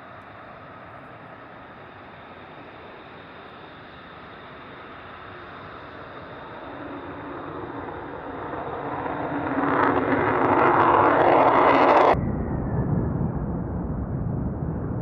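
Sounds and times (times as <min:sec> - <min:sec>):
jet engine roar: 0:00.0 - 0:15.0
low rumble: 0:08.3 - 0:15.0.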